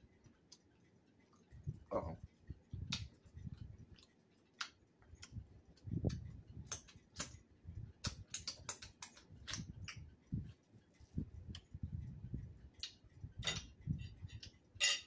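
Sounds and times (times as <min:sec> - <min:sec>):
chewing fish: 0:00.1 - 0:07.4
mouth clicks and smacks: 0:02.8 - 0:07.4, 0:08.0 - 0:10.4, 0:12.7 - 0:14.6.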